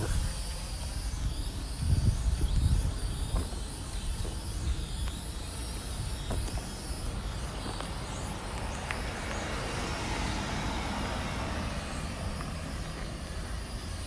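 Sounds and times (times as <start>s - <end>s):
wind buffeting microphone: 0.0s - 14.0s
road vehicle passing by: 6.6s - 14.0s.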